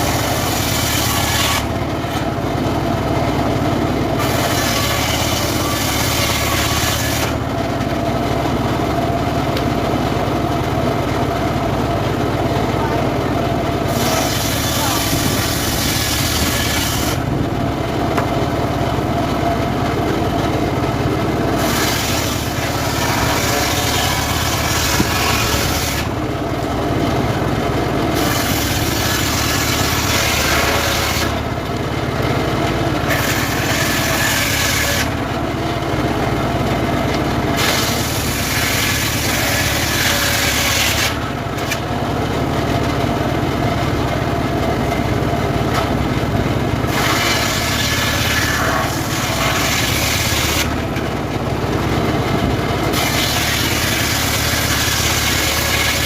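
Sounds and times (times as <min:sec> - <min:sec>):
motor drone: 0:00.0 - 0:56.0
saw blade hissing through wood: 0:13.9 - 0:17.2, 0:21.6 - 0:26.1, 0:46.9 - 0:50.7.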